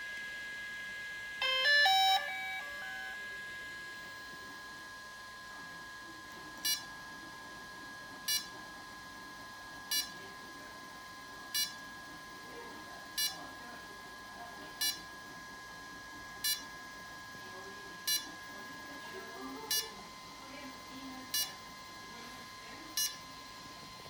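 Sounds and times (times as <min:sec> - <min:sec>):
faint high whine: 0:00.0 - 0:24.0
drone beeping: 0:01.4 - 0:03.6, 0:21.3 - 0:21.6, 0:23.0 - 0:23.2.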